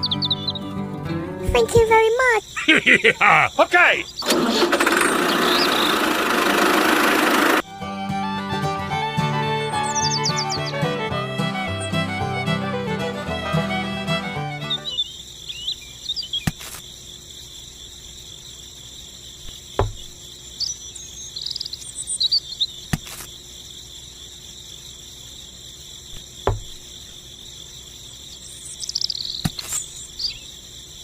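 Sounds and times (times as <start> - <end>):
insect chirring: 1.5 - 7.7, 9.8 - 12.3, 14.4 - 31.0.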